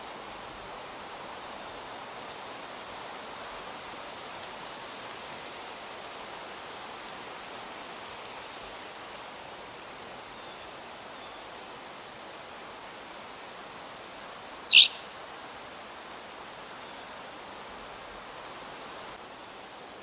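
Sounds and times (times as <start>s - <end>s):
faint bird chirp: 14.7s - 15.1s.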